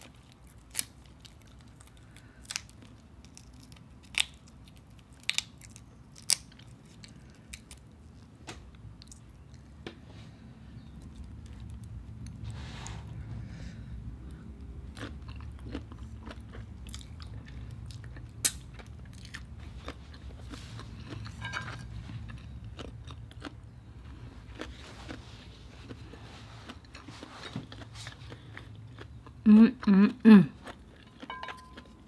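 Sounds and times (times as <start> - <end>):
chewing shrimp with mouth smacks: 25.9 - 29.4.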